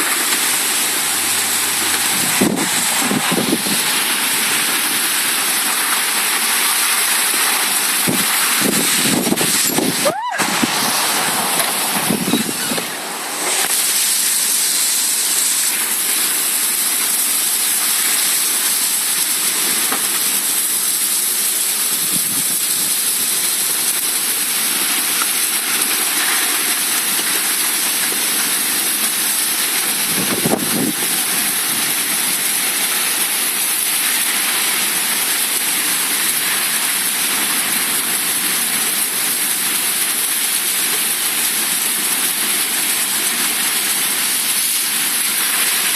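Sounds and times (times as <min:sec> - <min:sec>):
heavy rain pouring: 0:00.0 - 0:45.9.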